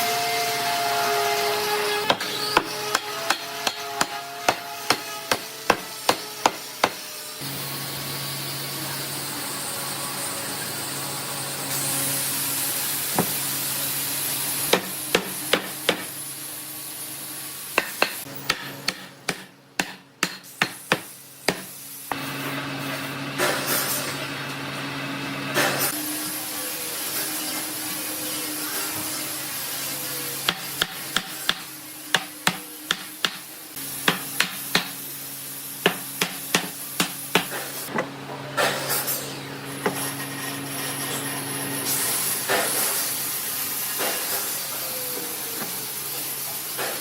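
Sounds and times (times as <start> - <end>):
workshop tool motor humming: 0.0 - 47.0
hammer striking wood: 2.0 - 7.0, 14.7 - 16.1, 17.8 - 21.7, 30.5 - 33.4.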